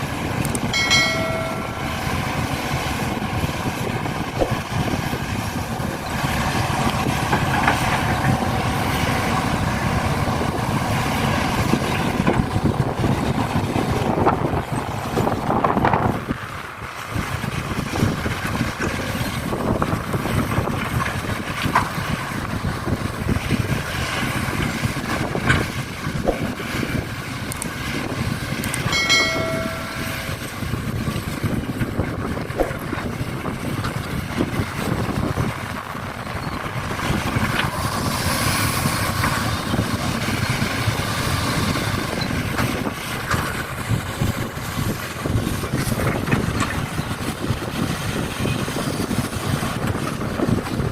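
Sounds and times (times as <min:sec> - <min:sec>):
rough vehicle engine rumble: 0:00.0 - 0:50.9
short pitched tone: 0:00.8 - 0:02.2, 0:28.9 - 0:30.6.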